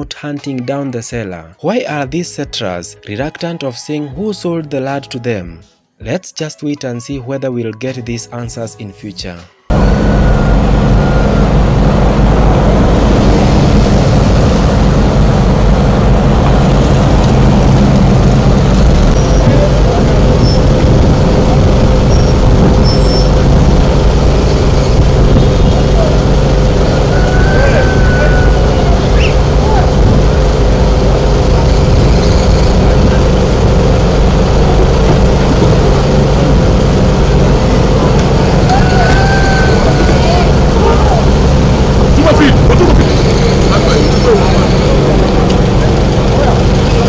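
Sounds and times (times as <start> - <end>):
large engine running loudly: 9.7 - 47.0.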